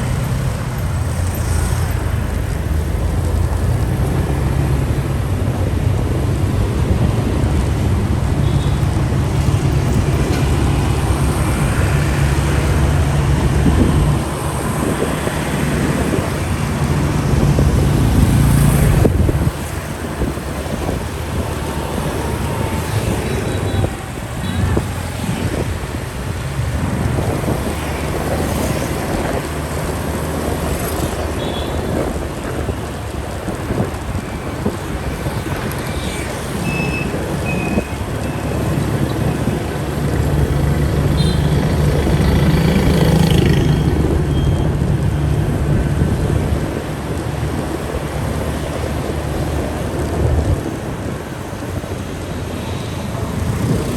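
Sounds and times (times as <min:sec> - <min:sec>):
road and wind noise: 0:00.0 - 0:53.9
motorcycle engine: 0:38.5 - 0:46.8.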